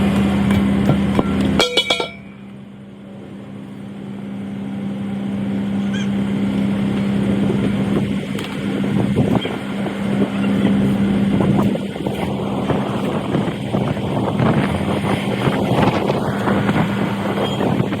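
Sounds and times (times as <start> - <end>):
metallic knocks and clatter: 0.2 - 2.4
motor hum: 2.4 - 18.0.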